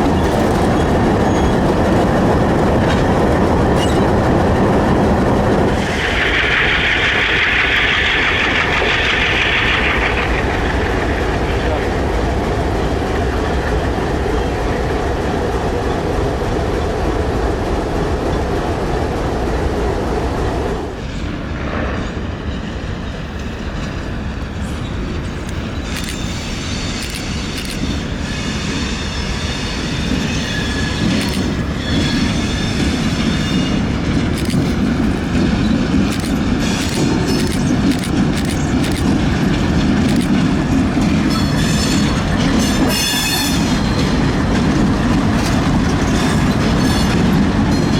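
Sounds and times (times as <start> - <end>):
locomotives rumbling on track: 0.0 - 47.9
shrill wheel flange squeals: 0.2 - 1.7, 3.8 - 4.2, 25.6 - 33.9, 41.3 - 44.2.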